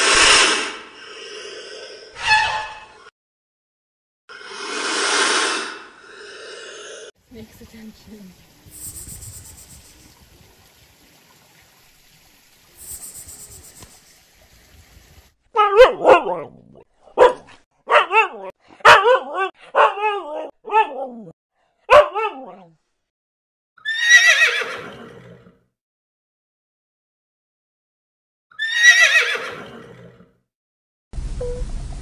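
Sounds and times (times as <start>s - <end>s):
zebra braying bark: 15.6s - 16.4s, 17.2s - 20.1s, 21.9s - 22.3s
husky barking and yipping: 15.6s - 21.2s, 21.9s - 22.6s.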